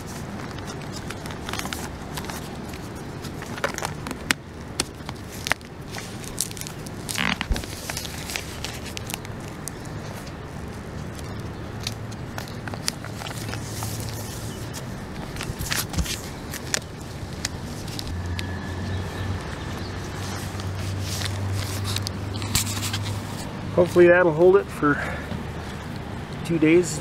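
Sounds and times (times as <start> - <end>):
tape being pulled: 0.0 - 10.4, 20.2 - 23.5
plastic sheeting crinkling: 0.0 - 10.5, 12.3 - 18.2.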